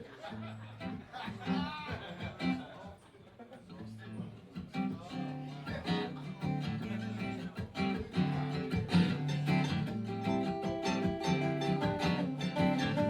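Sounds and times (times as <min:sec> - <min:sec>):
acoustic guitar strumming: 0:04.0 - 0:13.0.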